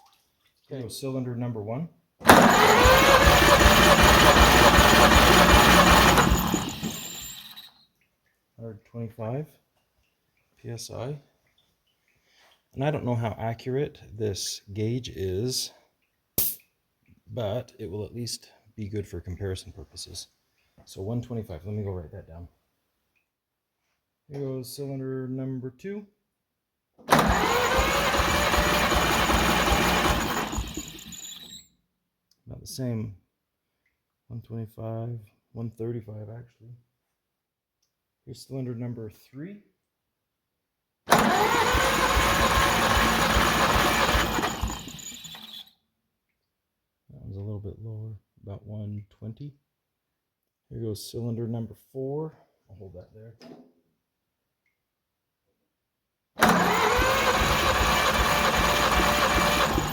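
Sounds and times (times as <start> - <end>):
engine cranking on starter: 2.2 - 7.7, 27.1 - 31.6, 41.1 - 45.6, 56.4 - 59.9.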